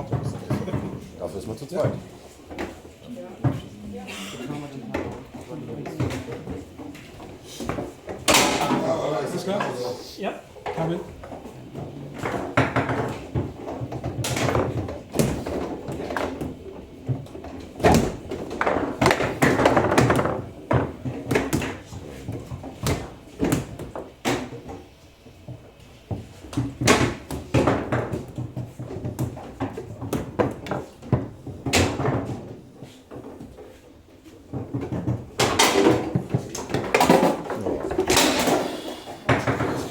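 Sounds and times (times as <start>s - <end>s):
foosball table rattling: 5.0s - 9.9s, 10.5s - 39.9s
foosball ball knocks: 7.2s - 9.1s, 17.2s - 24.6s, 34.6s - 39.9s.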